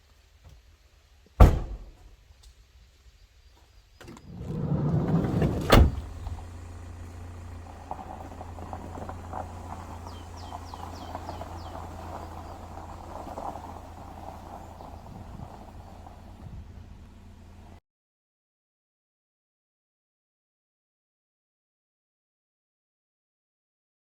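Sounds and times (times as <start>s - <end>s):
sliding door slamming shut: 1.4s - 1.9s, 4.0s - 6.9s
car engine humming: 4.0s - 17.8s
bird chirping: 5.9s - 17.7s.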